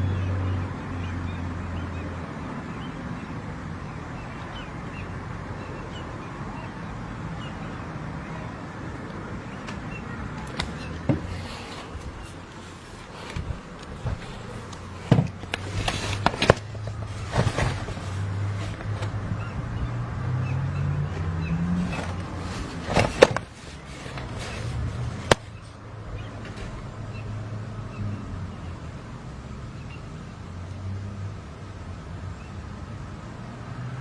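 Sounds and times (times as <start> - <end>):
vehicle engine running: 0.0 - 30.7
sharp knocks: 13.3 - 19.1.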